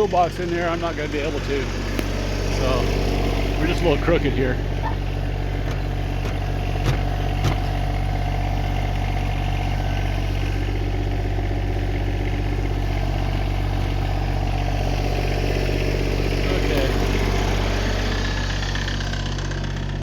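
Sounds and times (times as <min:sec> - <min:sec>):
tractor engine idling: 0:00.0 - 0:20.0
sharp knocks: 0:05.6 - 0:07.8.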